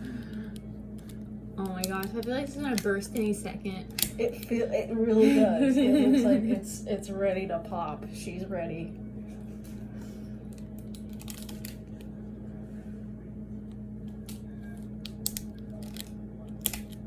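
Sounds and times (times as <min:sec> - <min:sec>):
steady low hum: 0:00.0 - 0:17.0
rubber bands snapping: 0:03.9 - 0:04.2, 0:15.0 - 0:17.0.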